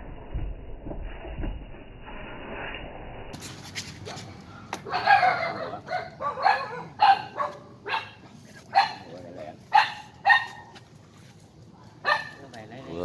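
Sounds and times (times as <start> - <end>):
dog barking: 4.8 - 9.1, 9.7 - 10.8, 11.8 - 13.0.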